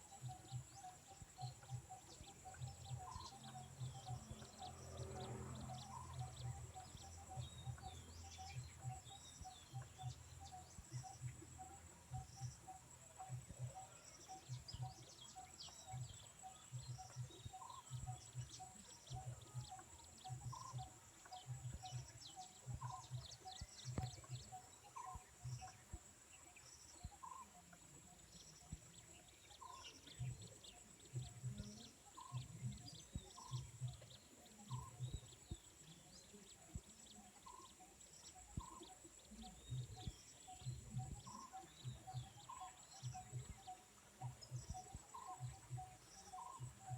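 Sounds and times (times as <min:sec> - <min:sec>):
pulsing insect trill: 0:37.0 - 0:46.9.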